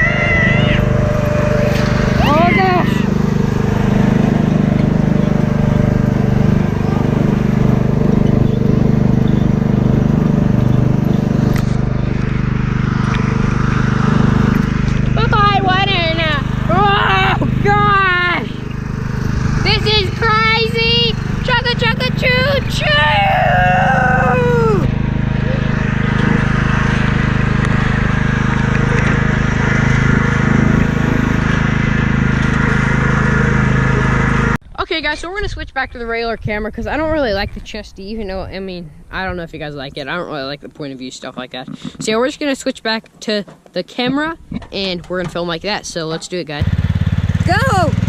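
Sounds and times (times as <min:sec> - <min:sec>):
lawnmower engine running: 0:00.0 - 0:35.0, 0:44.1 - 0:48.0.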